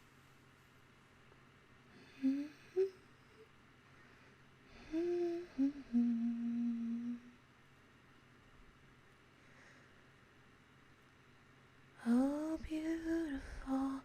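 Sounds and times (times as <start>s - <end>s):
woman humming: 1.9s - 3.5s, 4.7s - 7.4s, 12.0s - 14.0s.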